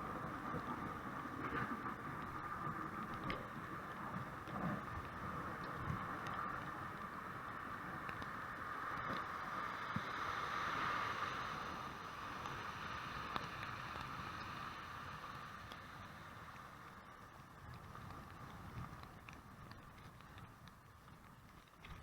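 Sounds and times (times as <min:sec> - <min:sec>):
tyres on wet snowy street: 0:00.0 - 0:22.0
faint clicks: 0:08.0 - 0:08.3, 0:16.5 - 0:22.0.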